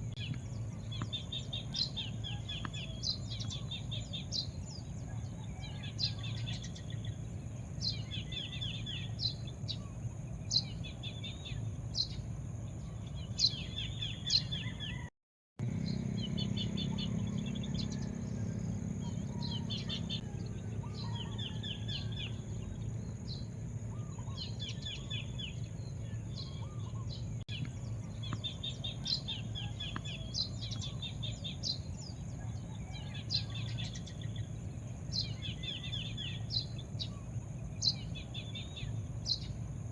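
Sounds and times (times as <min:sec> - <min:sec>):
low outdoor rumble: 0:00.0 - 0:39.9
songbirds chirping: 0:00.0 - 0:39.9
bird call with trill: 0:14.3 - 0:15.1, 0:16.3 - 0:22.8.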